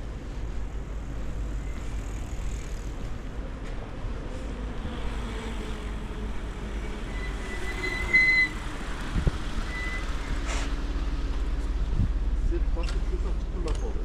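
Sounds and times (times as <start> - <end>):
vehicle passing: 2.6 - 12.7
wind on microphone: 9.0 - 9.6, 11.8 - 12.3.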